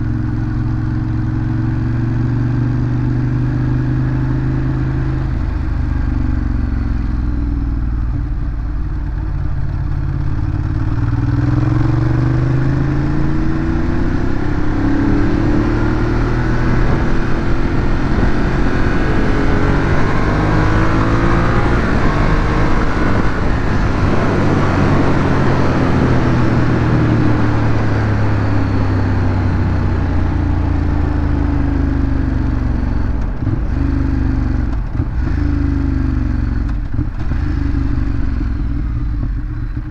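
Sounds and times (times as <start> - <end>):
motorcycle engine revving: 0.0 - 39.9
wind noise: 12.9 - 30.2.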